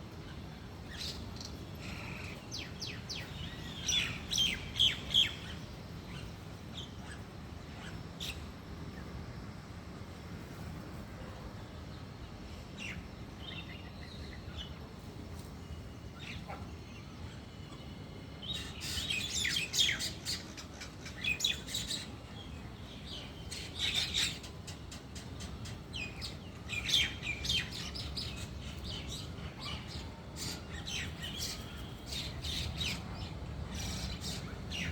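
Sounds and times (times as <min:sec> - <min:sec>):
small birds chirping: 0:15.4 - 0:34.9.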